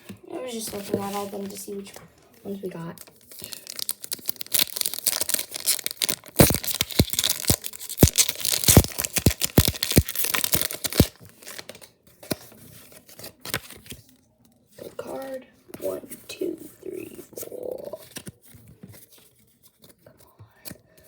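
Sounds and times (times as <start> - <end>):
foil wrapper tearing and crinkling: 3.0 - 11.8.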